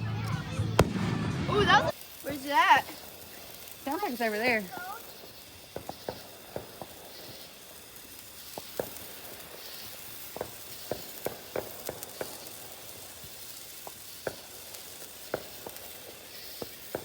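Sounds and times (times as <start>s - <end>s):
steady hiss: 0.0s - 17.0s
distant fireworks bangs: 0.2s - 13.1s, 13.8s - 17.0s.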